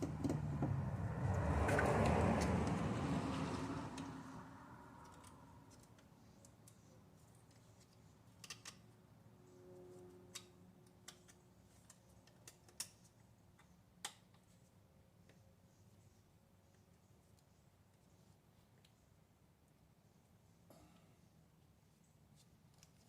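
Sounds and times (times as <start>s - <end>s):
small parts clicking: 7.4s - 8.9s, 10.3s - 14.4s.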